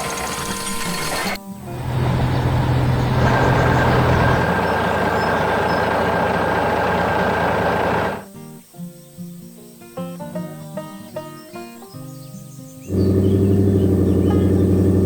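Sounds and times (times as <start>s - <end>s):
heavy vehicle engine running: 0.0s - 8.2s, 12.9s - 15.0s
low hum: 1.6s - 8.2s.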